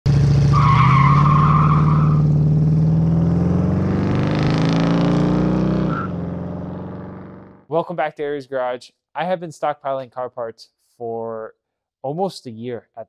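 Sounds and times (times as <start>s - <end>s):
car engine accelerating hard: 0.1s - 7.6s.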